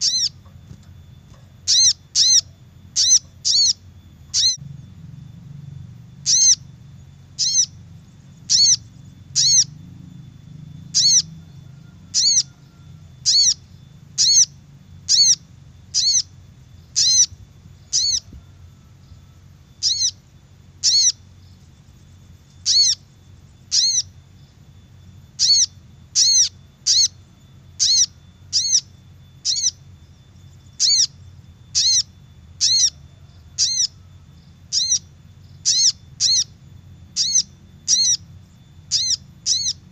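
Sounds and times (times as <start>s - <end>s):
high bird call: 0.0s - 4.6s, 6.2s - 10.0s, 10.8s - 21.6s, 22.5s - 24.4s, 25.3s - 30.0s, 30.8s - 39.9s
faint low hum: 0.0s - 39.9s.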